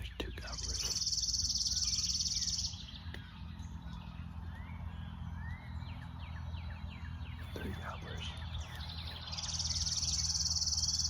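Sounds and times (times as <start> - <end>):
faint bird chirps: 0.0 - 11.0
bird high fast trill: 0.6 - 2.9, 9.3 - 11.0.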